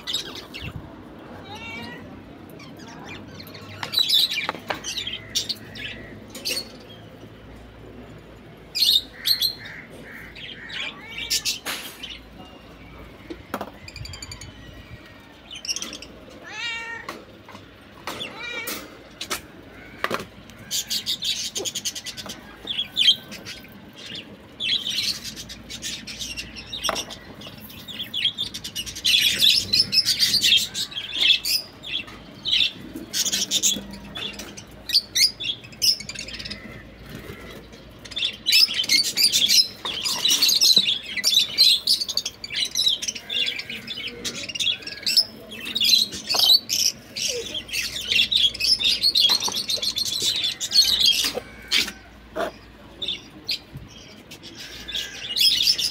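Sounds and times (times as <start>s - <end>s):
budgerigars chattering and chirping: 8.8s - 12.4s, 19.7s - 55.9s.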